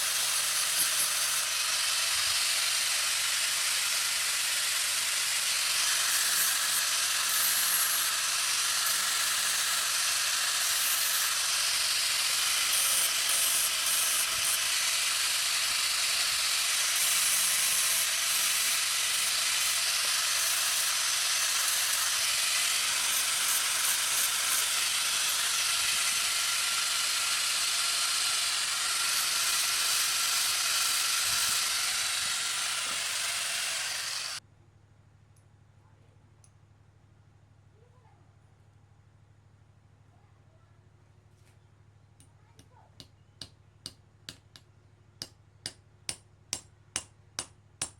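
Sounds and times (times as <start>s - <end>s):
loud steady hiss: 0.0s - 34.4s.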